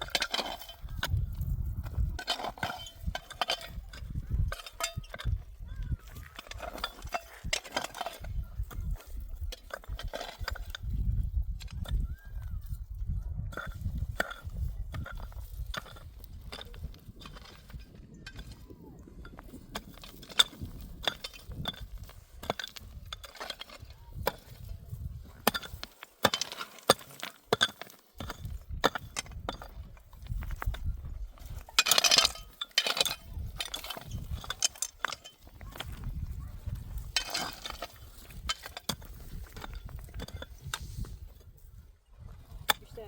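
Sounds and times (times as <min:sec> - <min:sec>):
clinks and knocks of objects: 0:00.0 - 0:43.0.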